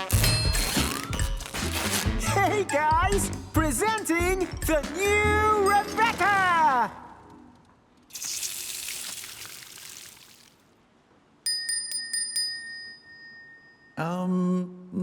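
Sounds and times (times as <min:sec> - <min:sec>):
small bell ringing: 0:11.5 - 0:14.1.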